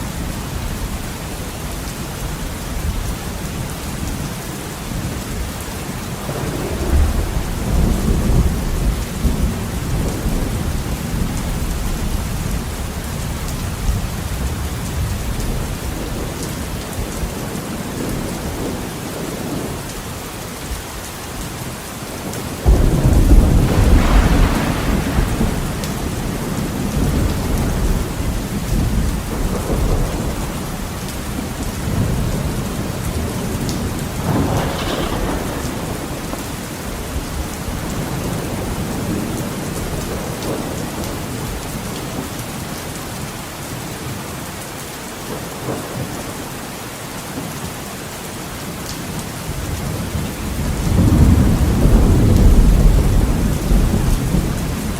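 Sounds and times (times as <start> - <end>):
heavy rain on a window: 0.0 - 54.9
thunder: 6.2 - 12.8, 22.2 - 41.6, 49.8 - 54.9.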